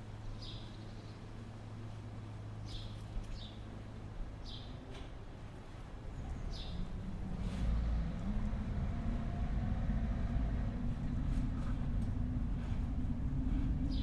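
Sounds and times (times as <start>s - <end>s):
low hum: 6.2s - 14.0s.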